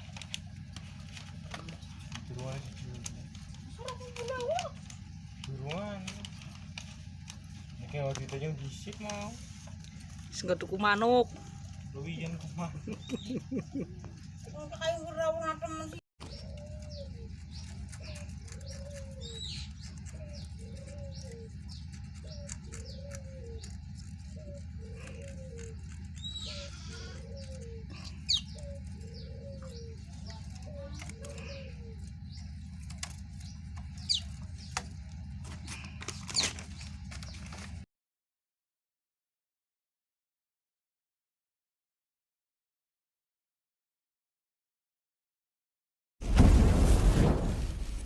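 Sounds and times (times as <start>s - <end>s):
steady low rumble: 0.0s - 37.7s, 46.2s - 48.0s
songbirds chirping and whistling: 0.0s - 37.8s
low arched bird call: 16.2s - 37.6s.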